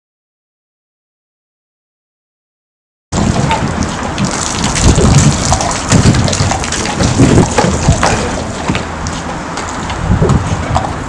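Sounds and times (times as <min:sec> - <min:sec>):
rain falling: 0:03.2 - 0:09.9
low rumble: 0:03.2 - 0:11.0.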